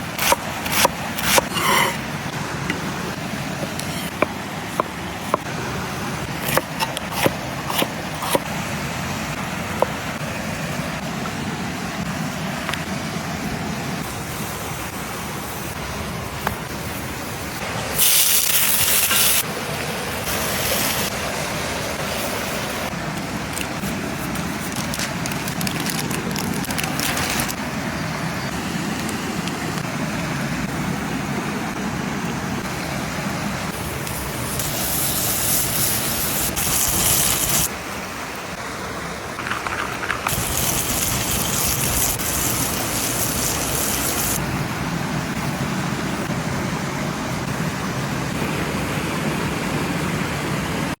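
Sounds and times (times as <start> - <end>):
steak sizzling: 34.0 - 37.7, 39.4 - 44.4.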